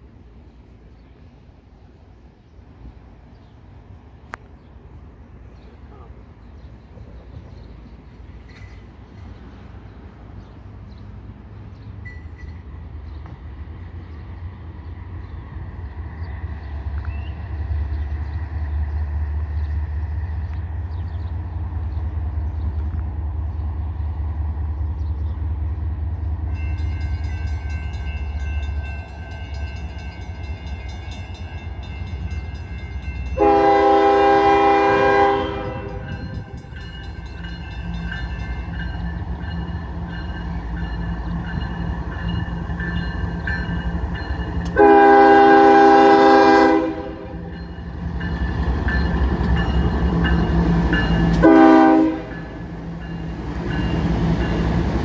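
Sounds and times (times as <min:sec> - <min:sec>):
diesel locomotive engine rumble: 0:00.0 - 0:55.0
locomotive horn blast: 0:33.4 - 0:36.7, 0:44.6 - 0:47.6, 0:51.2 - 0:52.6.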